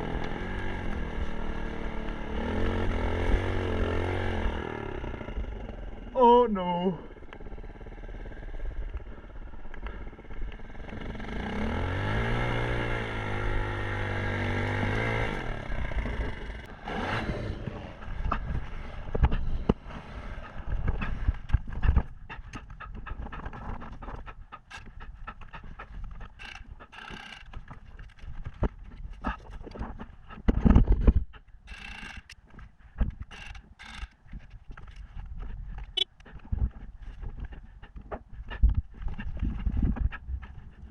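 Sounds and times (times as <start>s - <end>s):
dirt bike engine revving: 0.0s - 18.9s
knocks and scrapes: 16.1s - 40.9s.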